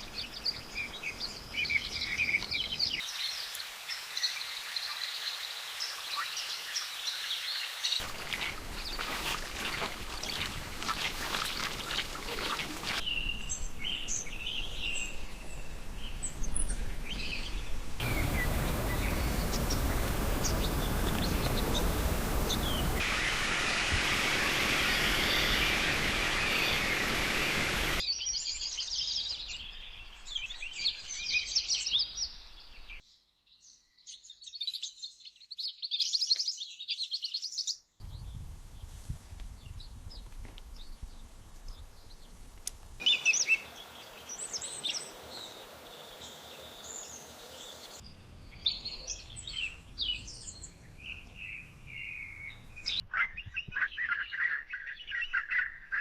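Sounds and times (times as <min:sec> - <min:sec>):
birds chirping and calling: 0:08.0 - 0:32.8, 0:43.0 - 0:48.0, 0:48.6 - 0:56.0
loud steady rushing noise: 0:18.0 - 0:28.0.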